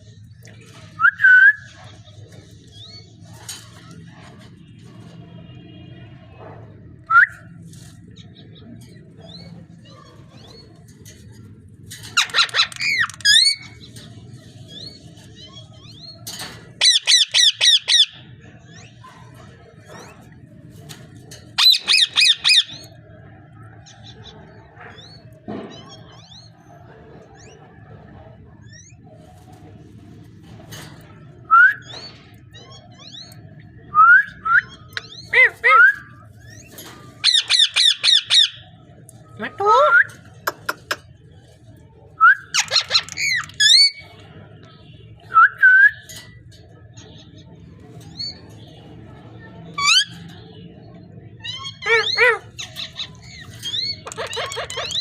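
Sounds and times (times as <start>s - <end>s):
parrot squawking: 12.2s - 13.8s, 21.6s - 22.9s, 34.6s - 36.2s, 37.2s - 38.6s, 42.4s - 44.0s, 51.4s - 55.0s
parrot whistling and calling: 37.2s - 38.6s, 51.4s - 55.0s.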